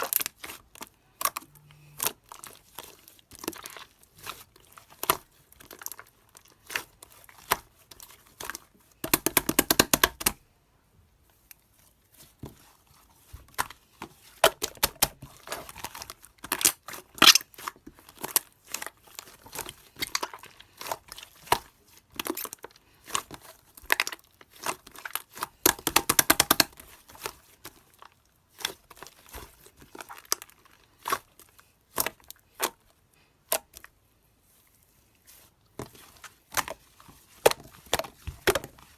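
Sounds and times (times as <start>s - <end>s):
slime squeezed and stretched: 14.4s - 34.0s.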